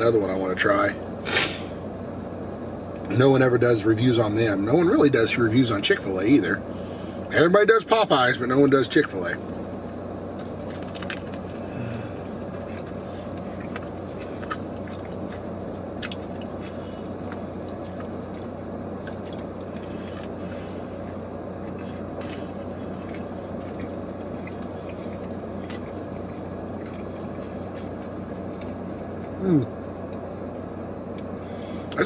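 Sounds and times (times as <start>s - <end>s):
low car cabin hum: 0.0s - 32.0s
chewing clicks: 12.6s - 20.8s, 21.6s - 28.8s.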